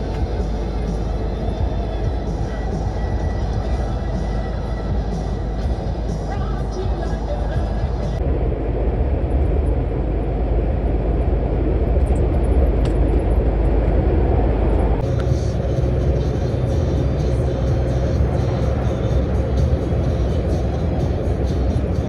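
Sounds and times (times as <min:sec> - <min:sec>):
background music: 0:00.0 - 0:08.2, 0:15.0 - 0:22.0
lorry engine and road rumble: 0:00.0 - 0:22.0.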